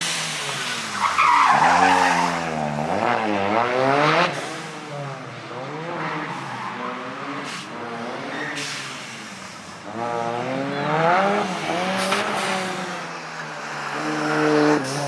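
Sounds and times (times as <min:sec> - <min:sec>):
rally car engine revving: 0:00.0 - 0:15.0
tyres skidding: 0:00.0 - 0:15.0.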